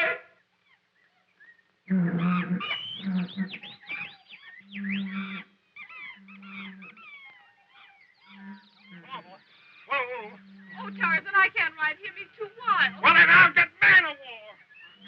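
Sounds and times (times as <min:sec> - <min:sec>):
wild animal screeches and calls: 0:01.9 - 0:11.2.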